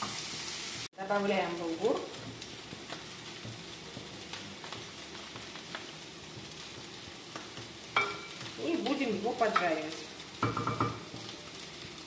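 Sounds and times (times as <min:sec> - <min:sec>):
butter and oil sizzling: 0:00.0 - 0:12.0
spatula tapping a pot: 0:05.7 - 0:08.5, 0:10.4 - 0:11.3.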